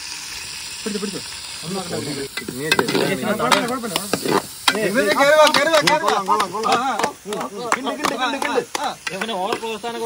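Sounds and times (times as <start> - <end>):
food sizzling in hot oil: 0.0 - 10.0
people's voices: 0.8 - 10.0
metal utensils stirring and clinking: 1.6 - 8.4.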